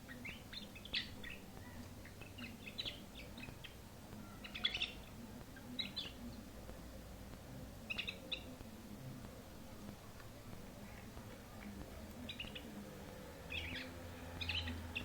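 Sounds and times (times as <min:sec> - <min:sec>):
canary chirping: 0:00.0 - 0:08.7, 0:10.8 - 0:15.0.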